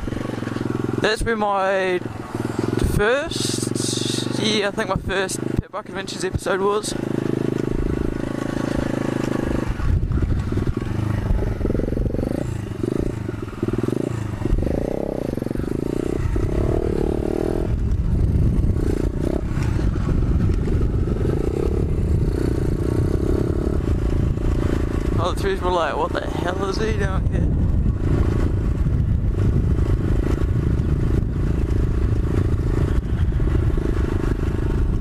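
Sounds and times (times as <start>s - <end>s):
motorbike engine revving: 0.0s - 35.0s
bike rattles and knocks: 6.3s - 25.4s.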